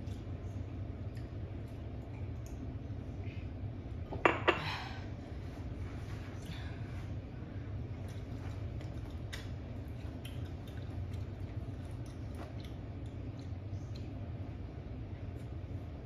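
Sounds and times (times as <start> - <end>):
person chewing: 8.0 - 14.2.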